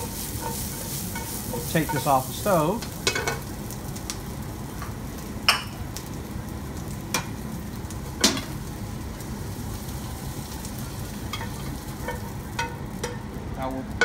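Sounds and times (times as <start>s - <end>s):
utensils clinking on stovetop: 0.0s - 3.5s, 11.3s - 13.3s
onions sizzling in a frying pan: 0.0s - 14.0s.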